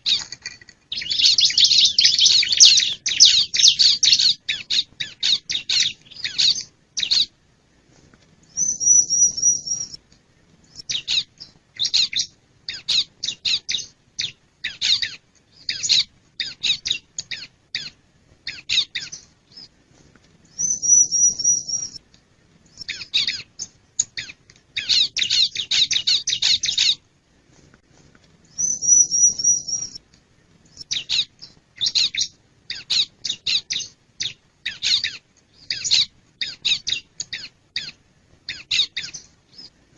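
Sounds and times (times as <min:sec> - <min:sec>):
bird sharp high chirps: 0:00.9 - 0:07.3, 0:08.5 - 0:10.0, 0:20.5 - 0:22.0, 0:22.7 - 0:27.0, 0:28.5 - 0:30.0, 0:30.7 - 0:39.7.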